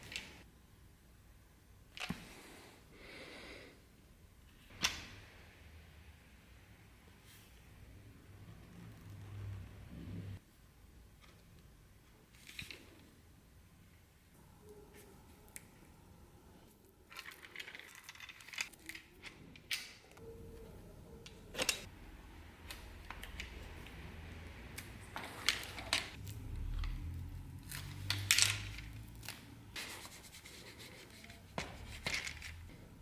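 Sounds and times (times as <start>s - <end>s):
small objects clicking and scraping: 16.8s - 20.2s, 24.7s - 29.8s, 31.1s - 32.8s.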